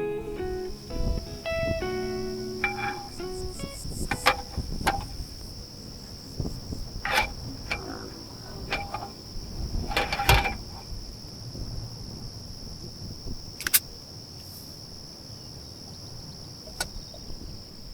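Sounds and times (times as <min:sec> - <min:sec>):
crickets trilling: 0:00.0 - 0:17.9
metal cookware clinking: 0:02.6 - 0:03.2, 0:08.6 - 0:09.2.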